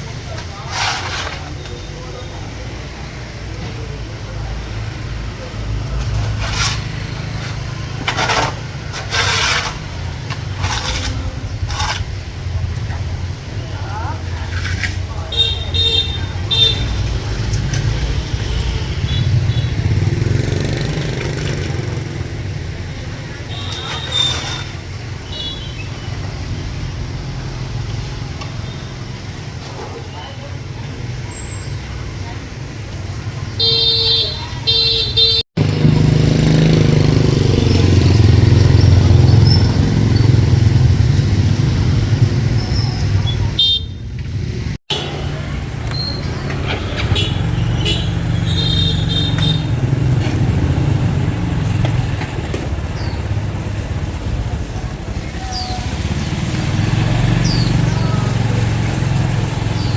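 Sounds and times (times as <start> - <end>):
motor vehicle engine rumble: 0.0 - 33.8, 34.4 - 59.9
vehicle horn tooting: 43.6 - 44.0, 47.0 - 49.8.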